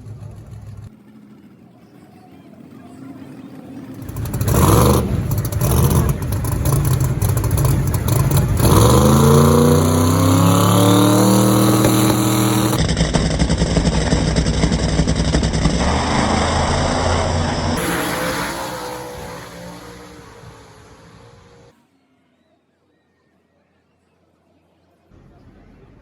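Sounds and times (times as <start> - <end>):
racing car engine accelerating: 4.0 - 21.7.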